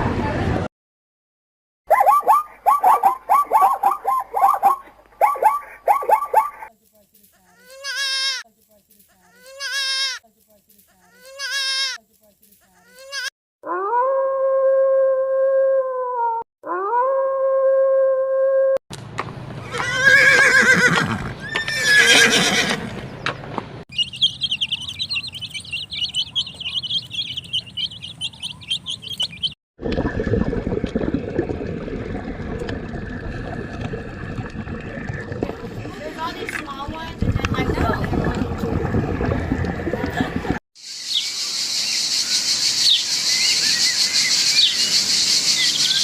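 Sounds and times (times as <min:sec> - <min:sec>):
horse whinnying: 0:19.7 - 0:22.9
drawn-out animal calls: 0:24.0 - 0:29.6.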